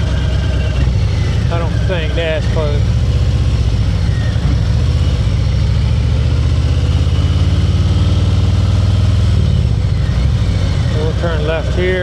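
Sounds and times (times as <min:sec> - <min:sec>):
motorcycle engine idling: 0:00.0 - 0:06.3, 0:08.9 - 0:12.0.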